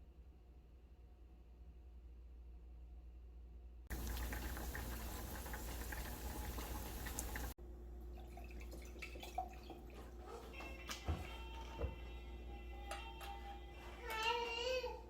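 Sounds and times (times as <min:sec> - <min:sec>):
water running from tap: 0:03.9 - 0:07.6, 0:08.2 - 0:10.1.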